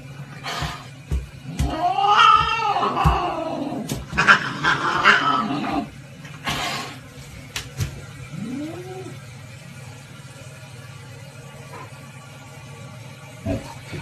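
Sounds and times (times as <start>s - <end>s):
animal yowling and growling: 1.5s - 5.9s, 8.3s - 9.2s.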